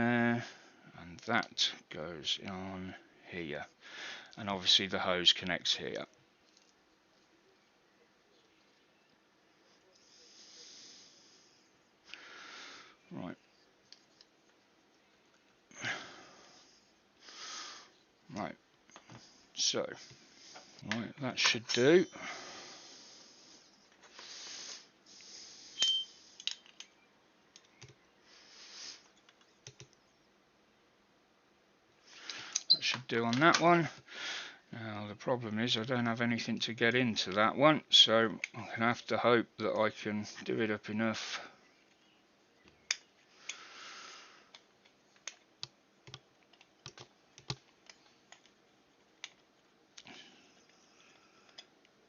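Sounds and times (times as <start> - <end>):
soft rustle: 13.1 - 17.0
metallic clink with ring: 25.8 - 26.7.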